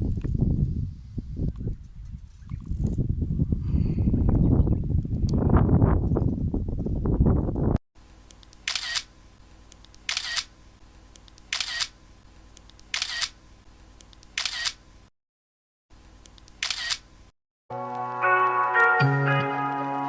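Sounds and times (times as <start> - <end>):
camera shutter clicks: 8.4 - 9.1, 9.8 - 10.5, 11.2 - 12.0, 12.6 - 13.4, 14.1 - 14.8, 16.3 - 17.1
music: 17.7 - 20.0.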